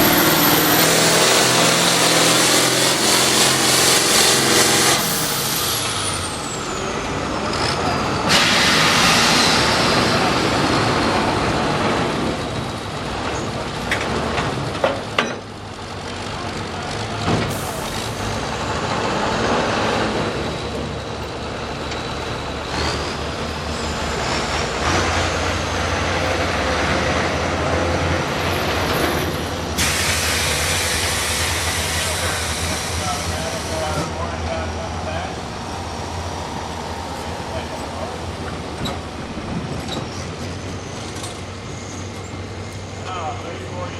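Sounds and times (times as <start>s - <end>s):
heavy vehicle engines running: 0.0s - 43.9s
loud broad hiss: 8.3s - 10.4s, 29.7s - 34.2s.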